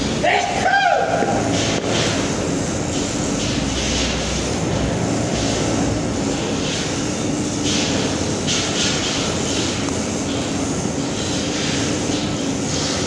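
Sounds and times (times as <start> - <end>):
hiss: 5.3 - 13.0.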